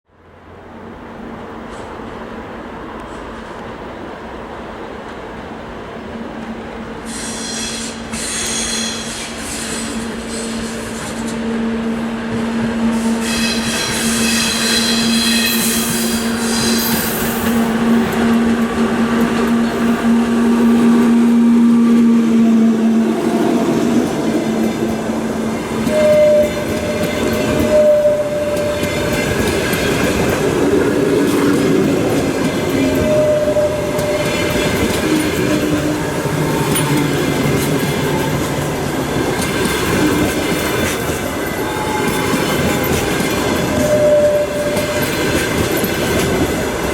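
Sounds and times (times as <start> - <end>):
electric locomotive hum: 0.2 - 46.9
train wheels squealing: 7.0 - 11.6, 12.7 - 20.1, 25.5 - 30.4, 31.3 - 38.6, 39.4 - 46.8
train wheel clatter: 7.1 - 46.9.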